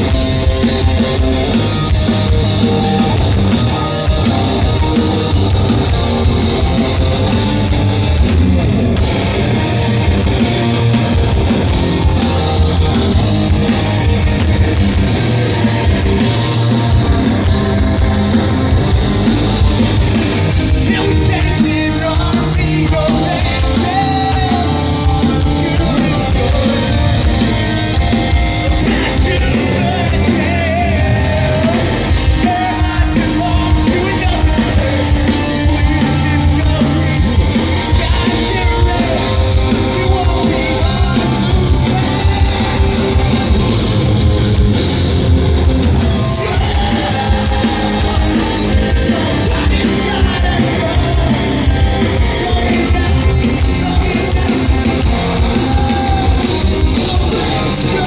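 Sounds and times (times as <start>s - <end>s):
distorted guitars: 0.0s - 58.0s
drums: 0.0s - 58.0s
person singing and yelling: 10.1s - 44.1s, 45.9s - 58.0s.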